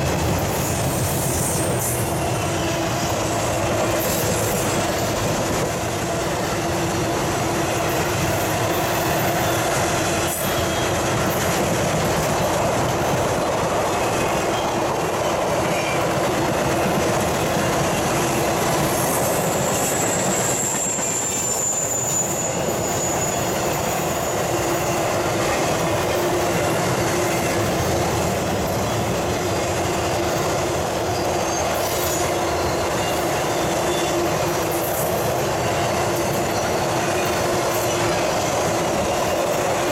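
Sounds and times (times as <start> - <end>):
steel wheels rumbling on rails: 0.0 - 39.9
high wheel squeal: 0.4 - 5.2, 7.8 - 11.3, 18.8 - 29.0, 31.0 - 39.9.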